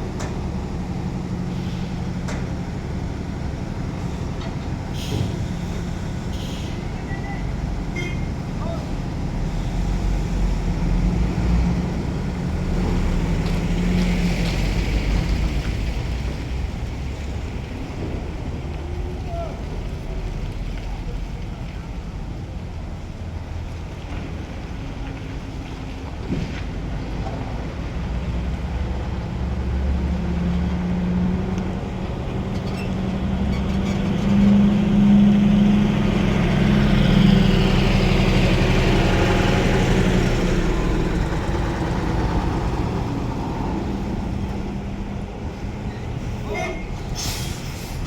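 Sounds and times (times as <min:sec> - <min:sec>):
truck diesel engine running: 0:28.6 - 0:46.4.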